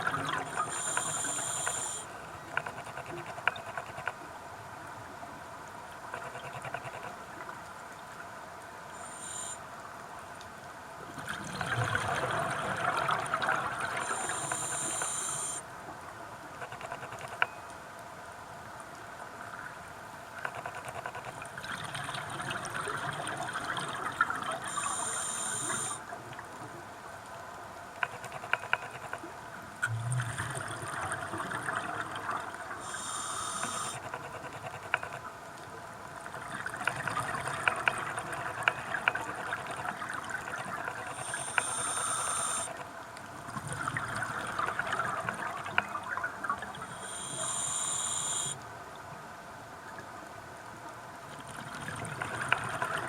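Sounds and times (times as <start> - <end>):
regulator hiss: 0.5 - 2.1, 9.0 - 9.6, 14.0 - 15.6, 24.7 - 26.0, 32.8 - 34.0, 41.1 - 42.8, 46.8 - 48.6
exhaled bubbles underwater: 11.2 - 15.6, 29.8 - 33.9.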